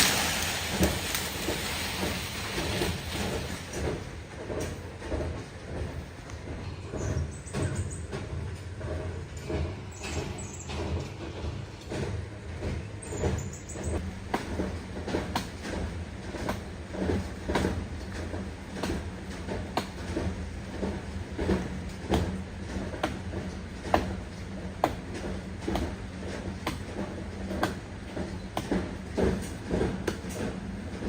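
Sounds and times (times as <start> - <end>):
sharp knocks and cracks: 0.0 - 5.4.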